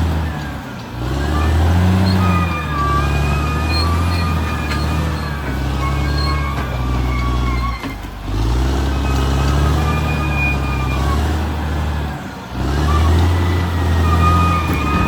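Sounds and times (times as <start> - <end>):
bulldozer diesel engine running: 0.0 - 15.0
high squealing tones: 1.2 - 8.0, 8.8 - 11.5, 12.8 - 15.0.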